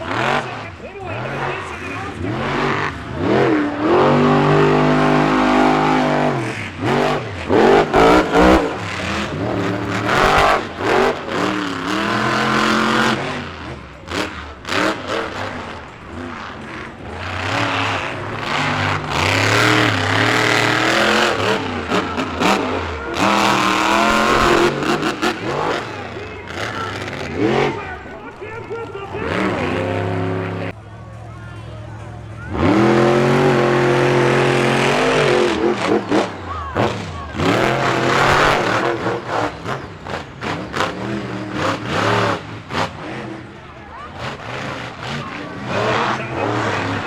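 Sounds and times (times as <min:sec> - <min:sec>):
truck engines revving: 0:00.0 - 0:47.0.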